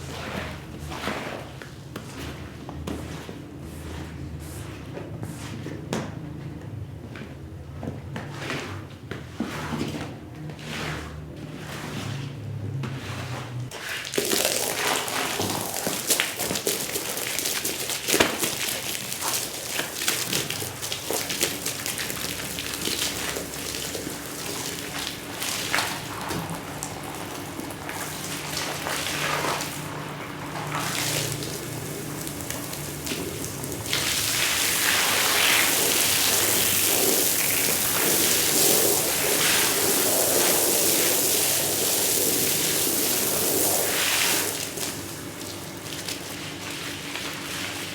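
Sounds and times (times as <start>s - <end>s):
scrubbing rug: 0.0s - 47.9s
water jet spraying: 14.0s - 46.6s.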